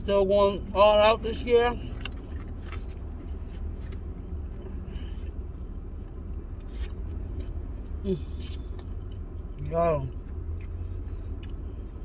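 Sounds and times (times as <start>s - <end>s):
low hum inside car: 0.0s - 12.0s
soft chewing clicks: 1.9s - 5.4s, 8.4s - 11.7s.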